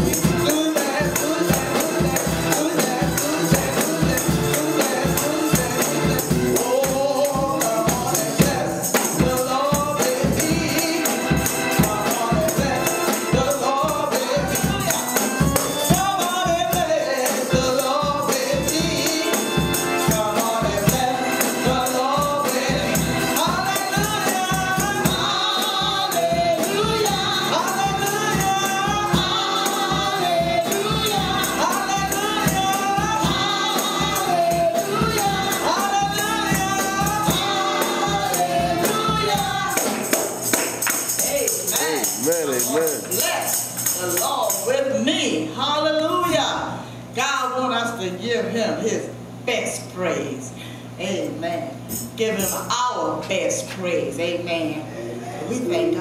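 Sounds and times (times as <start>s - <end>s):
choir singing gospel song: 0.0s - 42.2s
driving beat: 0.0s - 44.7s
tambourine: 0.0s - 44.8s, 51.8s - 52.7s.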